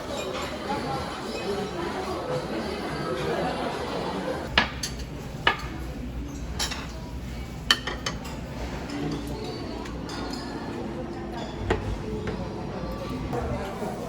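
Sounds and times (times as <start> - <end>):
murmur of voices: 0.0 - 14.0
cutlery clinking against dishes: 0.1 - 1.7, 4.4 - 12.4.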